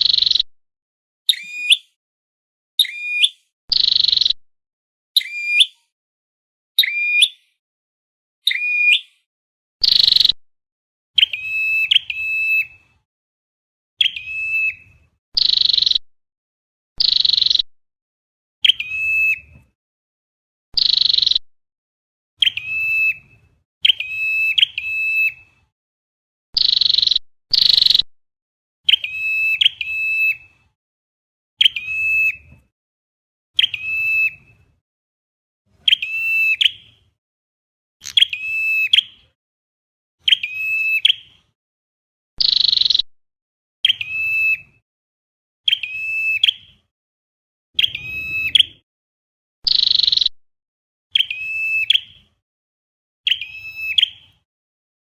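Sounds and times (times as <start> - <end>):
recorded bird calls: 0.0 - 0.5, 1.3 - 2.0, 2.8 - 4.4, 5.2 - 5.9, 6.8 - 7.6, 8.4 - 10.4, 11.2 - 13.0, 14.0 - 16.0, 17.0 - 17.7, 18.6 - 19.7, 20.8 - 21.4, 22.4 - 25.6, 26.6 - 28.1, 28.8 - 30.8, 31.6 - 32.7, 33.6 - 34.8, 35.7 - 37.1, 38.0 - 39.4, 40.2 - 41.6, 42.4 - 43.1, 43.8 - 44.8, 45.7 - 46.9, 47.8 - 48.8, 49.6 - 50.4, 51.1 - 52.4, 53.2 - 54.5.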